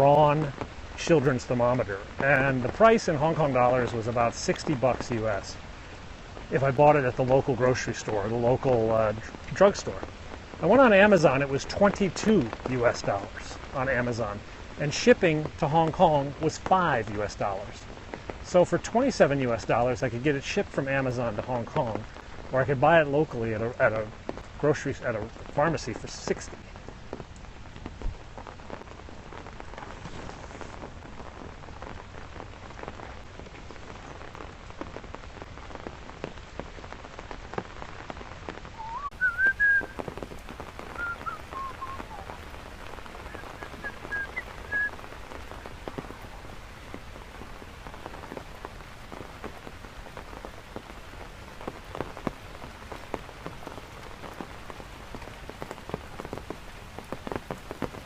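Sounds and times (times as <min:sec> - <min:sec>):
heavy rain falling: 0:00.0 - 0:58.0
high whistled notes: 0:38.8 - 0:40.0, 0:40.9 - 0:42.4, 0:43.3 - 0:45.0.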